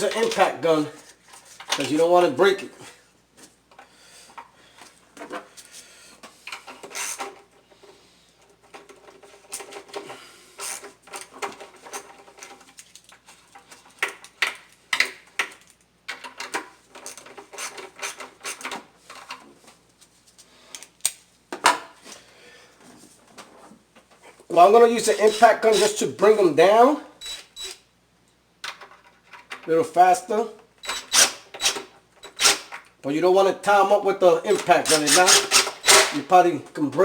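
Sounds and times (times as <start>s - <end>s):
bolts and tools clinking: 0.0s - 0.6s, 34.4s - 36.2s.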